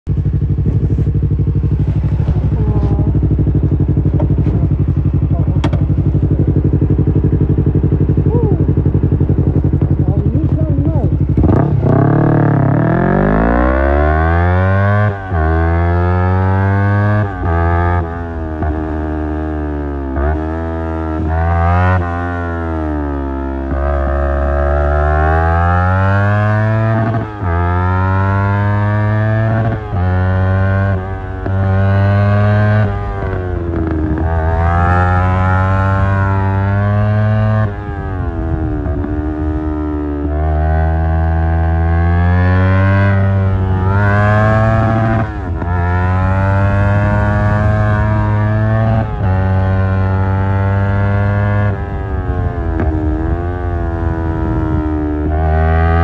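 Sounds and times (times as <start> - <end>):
motorcycle engine accelerating: 0.0 - 56.0
motorcycle engine idling: 0.1 - 13.5.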